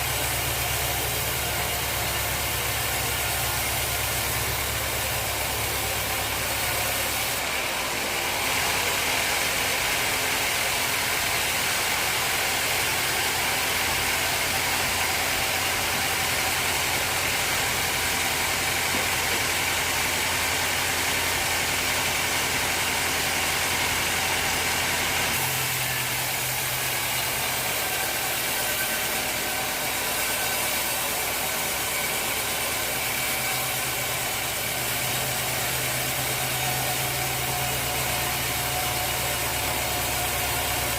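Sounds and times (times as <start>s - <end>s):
sawmill machine drone: 0.0s - 40.9s.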